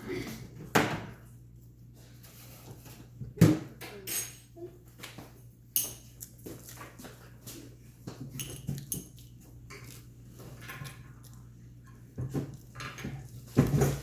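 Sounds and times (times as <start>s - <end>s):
dishes and cutlery clinking: 3.8s - 4.6s, 5.7s - 7.0s, 8.2s - 14.0s.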